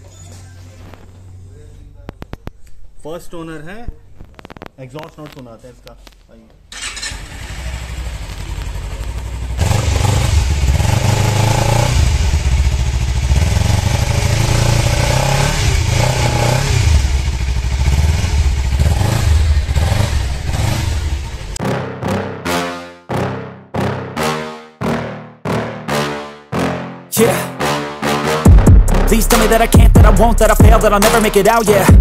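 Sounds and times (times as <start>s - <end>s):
motorcycle engine revving: 6.7s - 21.6s.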